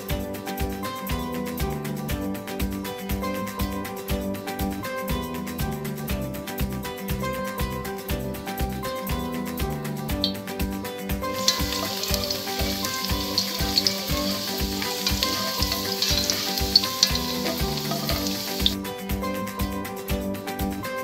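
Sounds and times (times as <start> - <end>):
background music with steady beat: 0.0 - 21.0
garlic sizzling in hot oil: 11.2 - 18.8.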